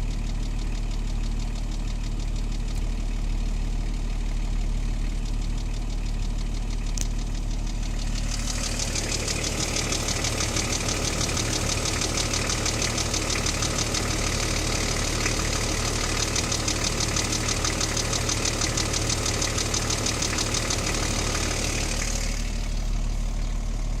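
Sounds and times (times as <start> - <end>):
diesel engine idling: 0.0 - 24.0
rapid ticking clatter: 7.6 - 22.7.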